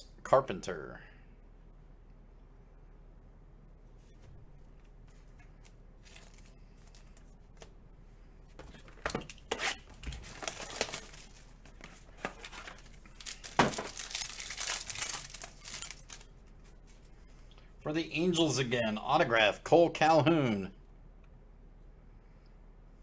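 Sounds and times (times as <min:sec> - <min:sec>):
plastic packaging crinkling and tearing: 0:05.3 - 0:07.7, 0:08.6 - 0:17.1.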